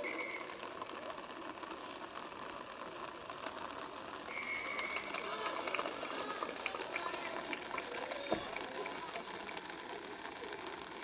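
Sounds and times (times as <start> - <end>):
referee's whistle: 0.0 - 0.6
murmur of field noise: 0.3 - 11.0.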